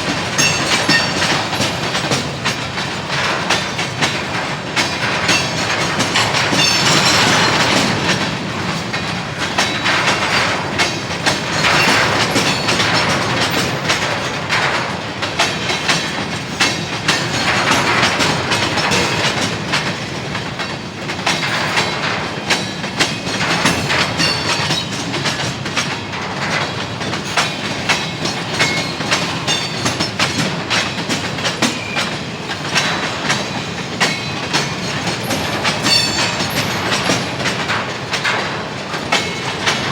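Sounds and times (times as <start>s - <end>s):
train rolling rumble: 0.0s - 39.9s
train wheels clickety-clack: 0.0s - 39.9s.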